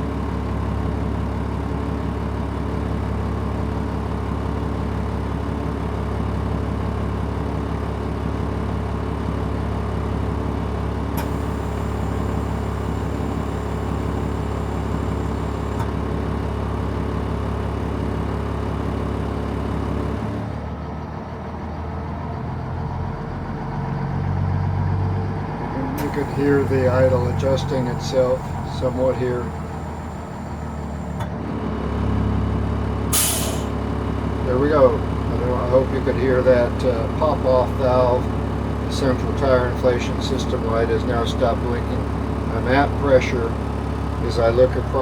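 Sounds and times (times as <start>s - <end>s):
diesel truck engine idling: 0.0s - 45.0s.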